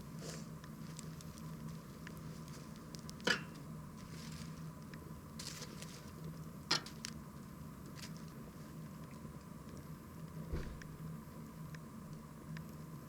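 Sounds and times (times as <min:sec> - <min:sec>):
campfire crackling: 0:00.0 - 0:05.5.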